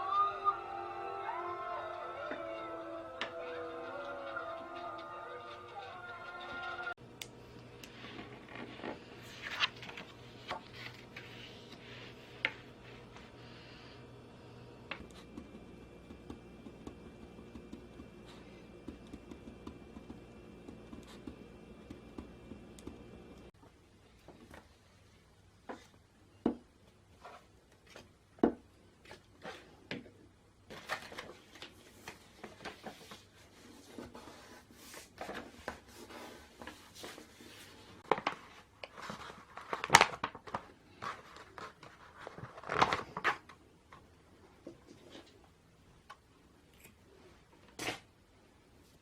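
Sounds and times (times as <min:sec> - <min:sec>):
machine hum: 0:00.0 - 0:23.5
packaging crinkling and tearing: 0:39.1 - 0:40.7.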